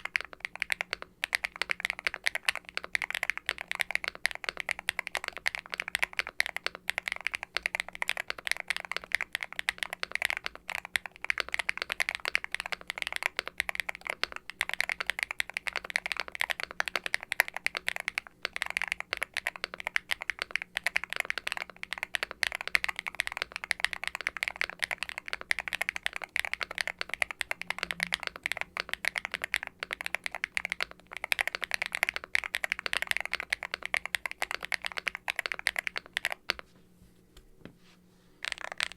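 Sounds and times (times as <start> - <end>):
mechanical keyboard typing: 0.0 - 36.6, 38.4 - 38.9.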